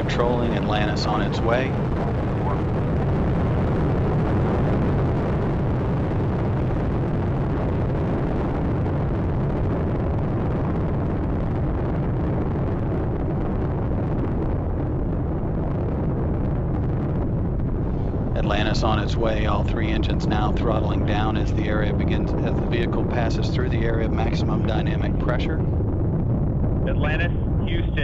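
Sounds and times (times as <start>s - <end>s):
rocket engines roaring: 0.0s - 28.0s.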